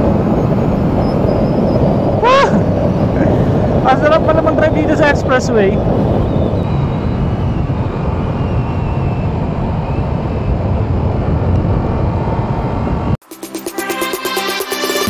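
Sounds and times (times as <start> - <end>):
road noise: 0.0 - 13.2
wind rush over microphone: 0.0 - 13.2.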